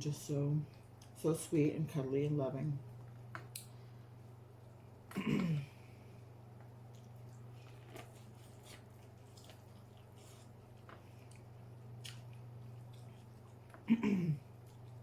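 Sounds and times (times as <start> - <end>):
steady low hum: 0.0 - 15.0
person chewing with wet smacks: 6.6 - 15.0.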